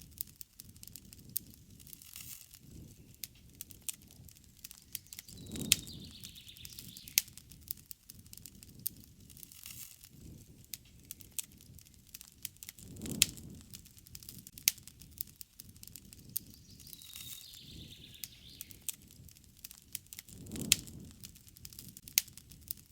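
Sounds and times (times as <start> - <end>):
campfire crackling: 0.0 - 22.9
faint bird call: 16.5 - 18.9.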